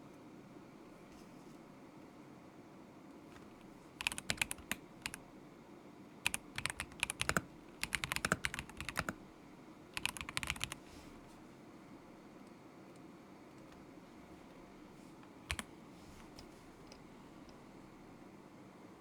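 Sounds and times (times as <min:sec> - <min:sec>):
mechanical keyboard typing: 0:03.4 - 0:05.2, 0:06.2 - 0:09.2, 0:10.0 - 0:10.8, 0:15.5 - 0:15.7.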